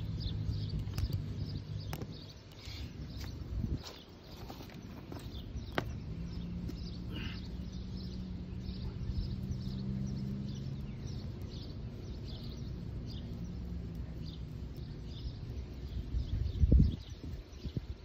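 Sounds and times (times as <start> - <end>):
low rumble: 0.0 - 2.4
small birds chirping: 0.0 - 18.0
steady low hum: 0.0 - 18.0.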